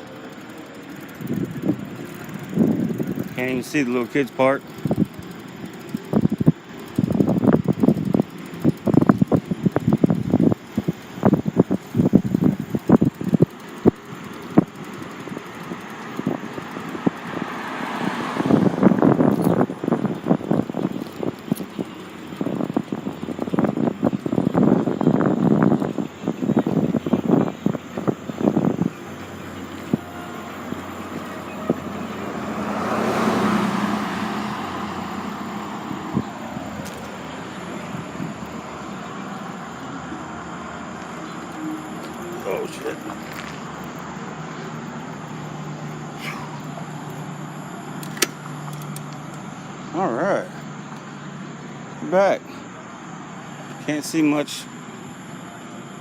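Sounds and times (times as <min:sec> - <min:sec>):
bicycle rattling: 0:00.0 - 0:51.3
car road noise: 0:00.0 - 0:56.0
wind on microphone: 0:01.2 - 0:03.6, 0:06.0 - 0:14.8, 0:16.2 - 0:38.8
car passing by: 0:17.0 - 0:19.6, 0:30.0 - 0:37.2
sharp clicks: 0:47.9 - 0:49.5.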